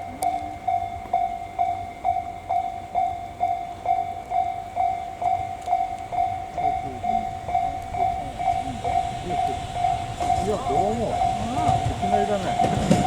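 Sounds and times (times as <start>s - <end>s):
level-crossing alarm ringing: 0.0s - 13.0s.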